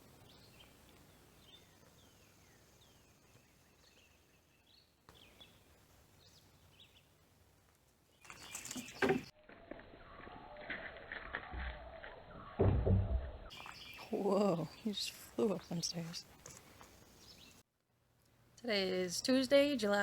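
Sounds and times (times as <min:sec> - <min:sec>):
small birds chirping: 0:00.0 - 0:07.2, 0:08.1 - 0:09.4, 0:13.4 - 0:17.7.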